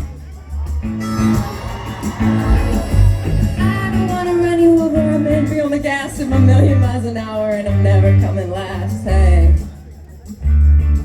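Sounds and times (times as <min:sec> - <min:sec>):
live band music: 0:00.0 - 0:11.0
woman singing: 0:03.5 - 0:09.6.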